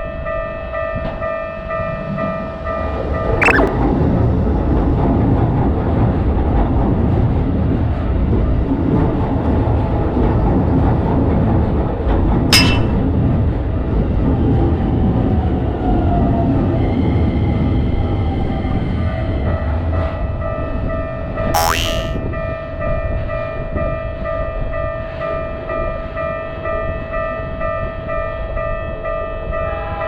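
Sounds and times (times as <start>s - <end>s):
sharp metal clank: 12.5s - 13.0s.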